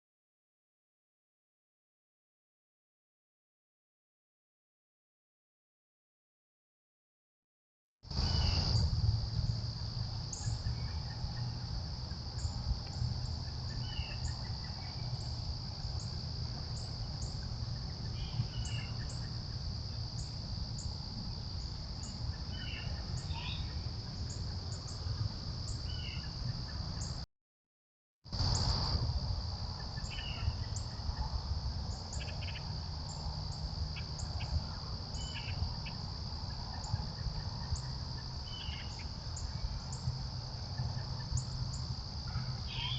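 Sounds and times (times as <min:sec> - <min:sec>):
crickets trilling: 0:08.1 - 0:27.2, 0:28.3 - 0:42.9.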